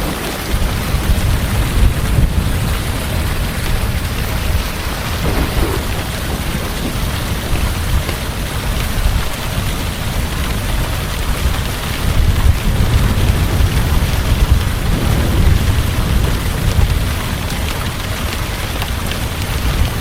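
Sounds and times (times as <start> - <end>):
heavy rain falling: 0.0 - 20.0
low rumble of thunder: 0.0 - 20.0.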